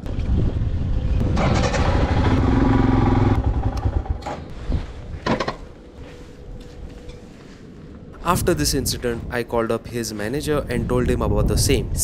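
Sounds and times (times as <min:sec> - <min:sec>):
motorcycle engine idling: 0:00.9 - 0:04.3.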